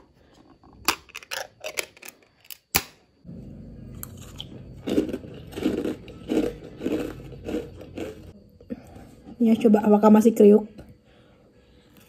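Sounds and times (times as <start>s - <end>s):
crunchy chewing: 3.5s - 8.4s.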